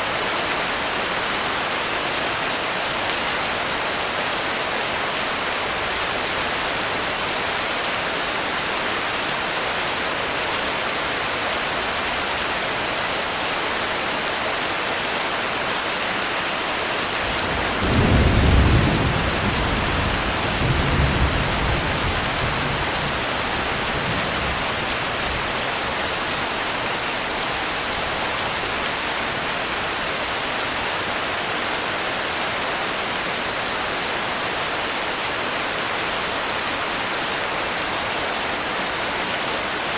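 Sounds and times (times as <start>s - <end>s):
steady rain hiss: 0.0s - 39.9s
low thunder rumble: 17.3s - 24.8s.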